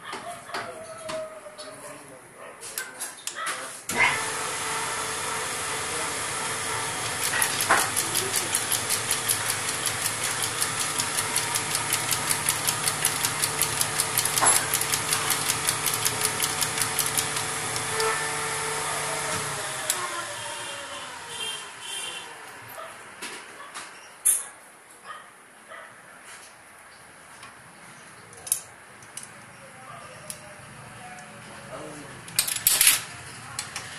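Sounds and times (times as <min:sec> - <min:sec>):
machine motor humming: 0:03.9 - 0:22.2
rapid even ticking: 0:07.0 - 0:17.9.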